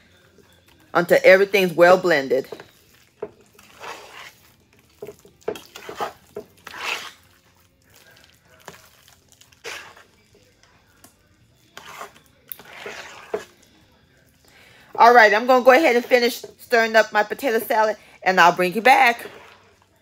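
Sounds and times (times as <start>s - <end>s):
spoon stirring thick food: 0.0s - 18.0s, 18.7s - 20.0s
spoon scraping metal pot: 0.5s - 10.3s, 11.6s - 13.7s, 18.7s - 19.8s.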